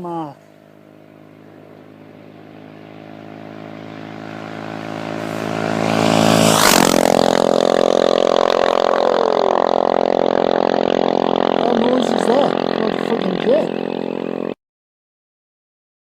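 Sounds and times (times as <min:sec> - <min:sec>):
motorcycle engine passing: 0:00.0 - 0:14.6
steady rushing noise: 0:00.7 - 0:14.6.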